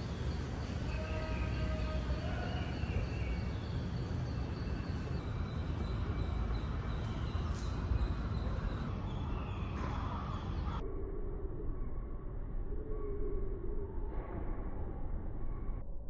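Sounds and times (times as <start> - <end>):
harsh crow-like bird calls: 0.0 - 5.6
low outdoor rumble: 0.0 - 16.0.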